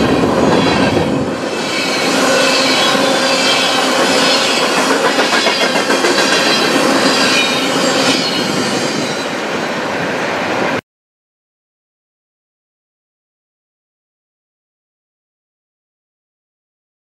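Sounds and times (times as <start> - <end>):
train wheels clattering: 0.0 - 9.2
high wheel squeal: 0.0 - 9.9.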